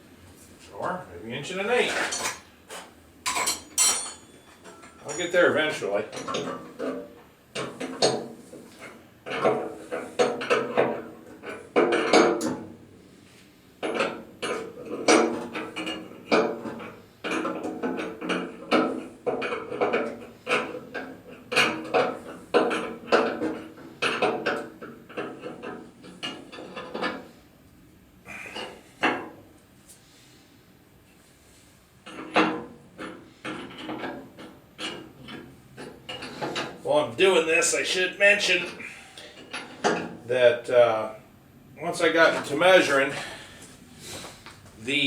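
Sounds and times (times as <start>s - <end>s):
metal tools clanking: 1.8s - 2.4s, 3.3s - 6.6s.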